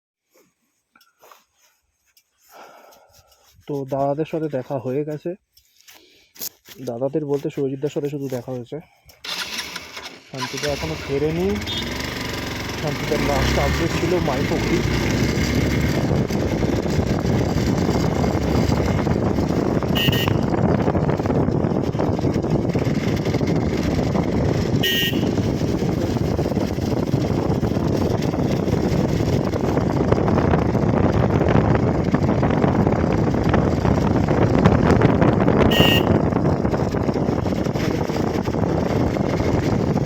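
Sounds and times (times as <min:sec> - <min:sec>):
motorcycle engine running: 0:09.2 - 0:40.0
vehicle horn toots: 0:11.5 - 0:12.2, 0:19.8 - 0:20.8, 0:24.6 - 0:25.6, 0:35.6 - 0:36.4
wind noise: 0:12.7 - 0:40.0.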